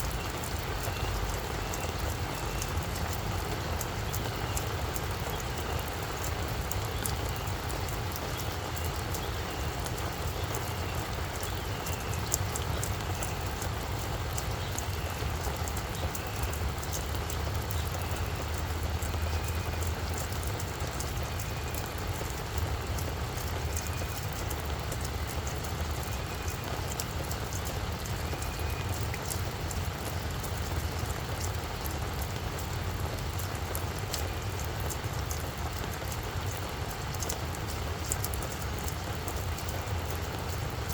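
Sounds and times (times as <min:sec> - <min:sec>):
rain pattering on plants: 0:00.0 - 0:40.9.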